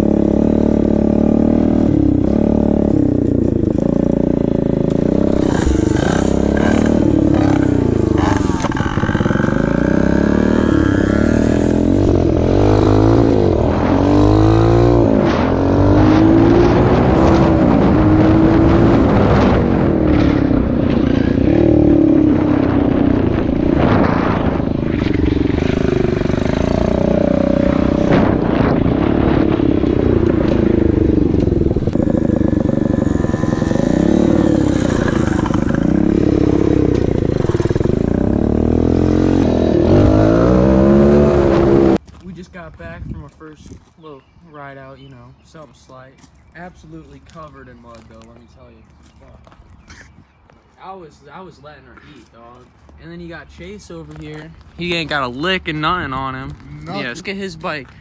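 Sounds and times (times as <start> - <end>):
pit bike engine revving: 0.0 - 42.0, 53.2 - 58.0.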